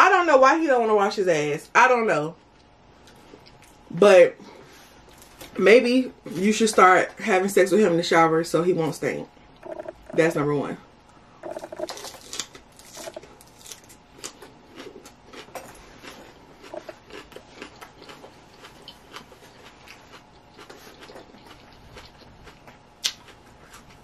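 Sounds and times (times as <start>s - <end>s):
chewing salad: 9.6s - 10.3s, 11.4s - 24.0s.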